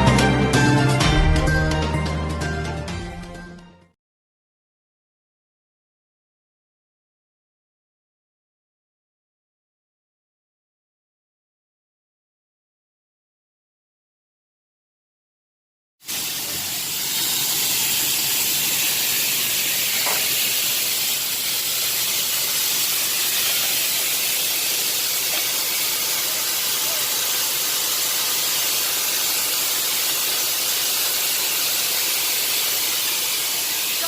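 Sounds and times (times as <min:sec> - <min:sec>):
steady hiss: 0:16.1 - 0:34.0.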